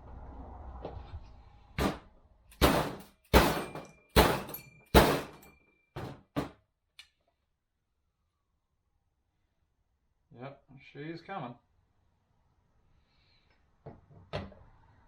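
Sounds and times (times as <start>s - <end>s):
hammer striking metal: 1.8s - 2.0s, 2.6s - 6.5s.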